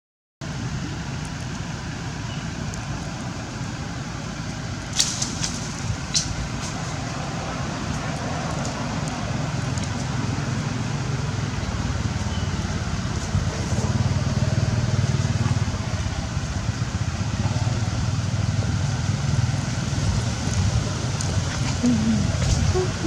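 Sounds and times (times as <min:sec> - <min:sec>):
motor engine running: 0:08.8 - 0:23.0.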